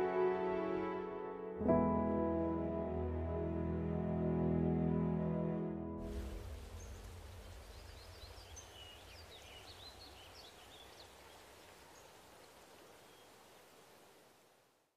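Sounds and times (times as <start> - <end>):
low rumble: 6.0 - 9.6
steady hiss: 6.0 - 14.8.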